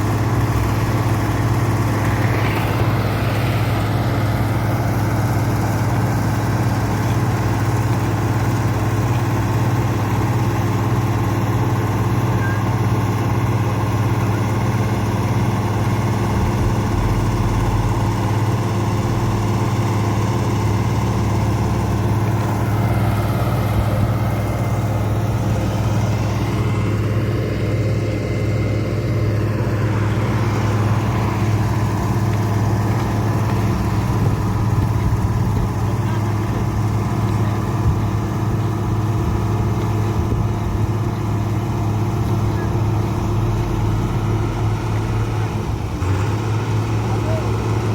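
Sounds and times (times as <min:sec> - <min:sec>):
diesel paving machine droning: 0:00.0 - 0:47.9
higher engine note shifting pitch: 0:15.0 - 0:22.2.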